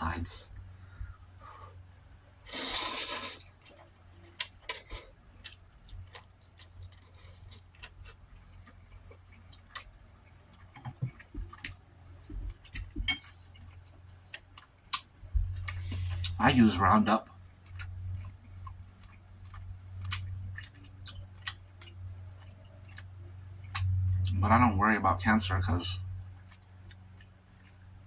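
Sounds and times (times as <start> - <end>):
mouth noises of eating: 1.0 - 9.9
loud wet slurp: 2.5 - 3.6.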